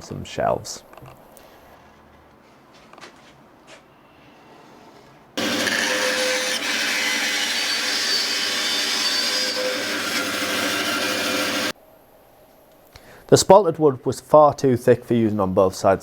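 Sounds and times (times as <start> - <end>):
power saw cutting wood: 5.4 - 11.8.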